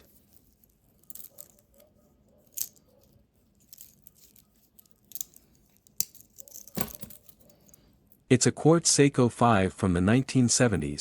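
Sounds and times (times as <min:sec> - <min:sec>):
wristwatch clicks and rustles: 0:00.0 - 0:08.2.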